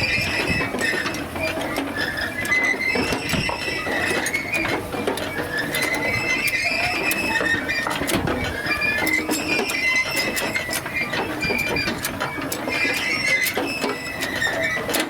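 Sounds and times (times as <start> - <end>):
hay machinery clattering: 0.0 - 15.0
short high squeaks: 5.4 - 12.0, 12.7 - 14.9.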